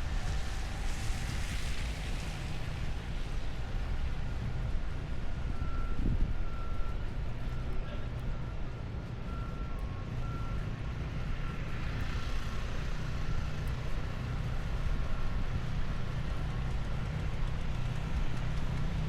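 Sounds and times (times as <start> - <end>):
heavy vehicle engine running: 0.0 - 19.0
reversing alarm beeping: 5.3 - 12.1.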